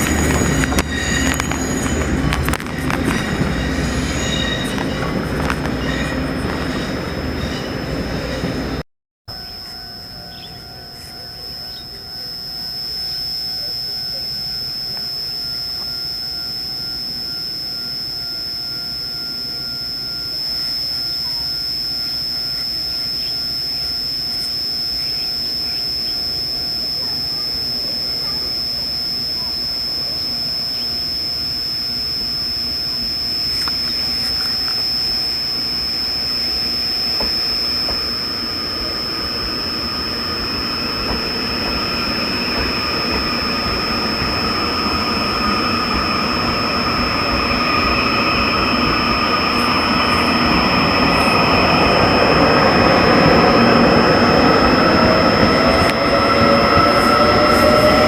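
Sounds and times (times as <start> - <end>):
train rumbling: 0.0 - 8.8, 37.9 - 58.0
high-pitched train whine: 0.0 - 58.0.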